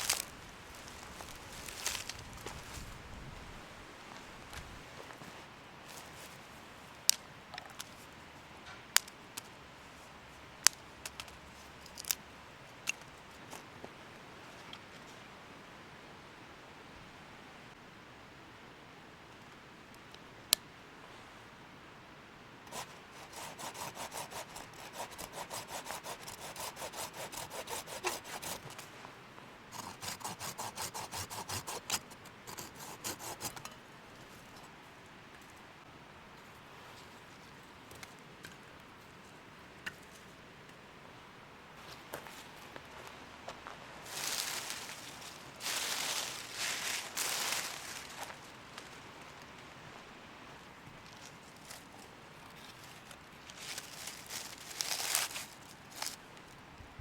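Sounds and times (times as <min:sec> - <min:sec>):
faint low hiss: 0:00.0 - 0:23.4, 0:28.0 - 0:29.8, 0:31.8 - 0:57.0
hand saw cutting wood: 0:22.7 - 0:28.8, 0:29.8 - 0:33.8.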